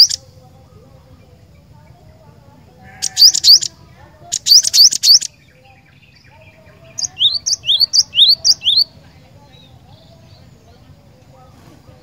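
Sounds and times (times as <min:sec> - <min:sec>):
bird singing high rising notes: 0:03.0 - 0:10.8.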